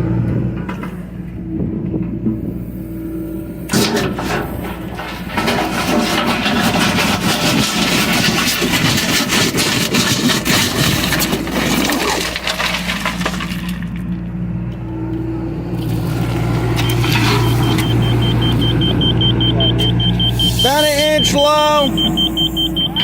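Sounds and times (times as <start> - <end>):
excavator diesel engine running: 0.0 - 23.0
bucket crunching through dirt and stone: 3.7 - 14.2, 15.8 - 20.8.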